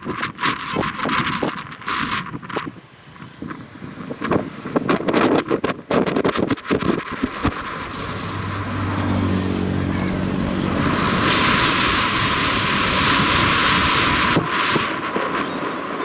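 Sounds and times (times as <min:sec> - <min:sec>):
moving vehicle rushing noise: 0:07.0 - 0:15.5
low pitched drone: 0:07.4 - 0:14.4.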